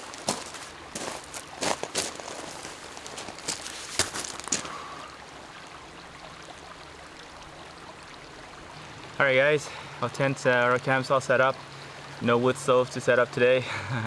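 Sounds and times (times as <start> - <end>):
water lapping at shore: 0.0 - 12.7.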